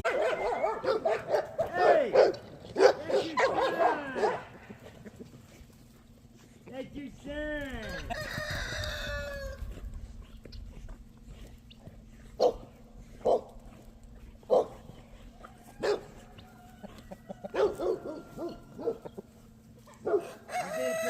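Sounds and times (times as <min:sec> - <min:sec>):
dog barking: 0:00.0 - 0:04.5, 0:12.4 - 0:13.5, 0:14.5 - 0:14.8, 0:15.8 - 0:16.2, 0:17.5 - 0:19.1, 0:20.0 - 0:20.4.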